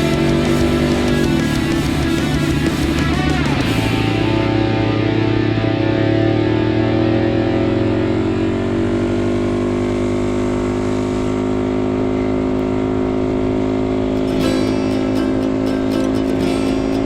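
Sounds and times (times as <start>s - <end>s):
mini bike engine running: 0.0s - 4.2s, 7.6s - 17.0s.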